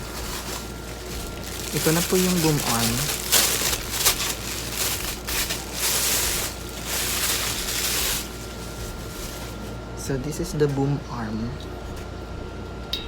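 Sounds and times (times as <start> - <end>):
plastic packaging rustling: 0.0 - 9.9.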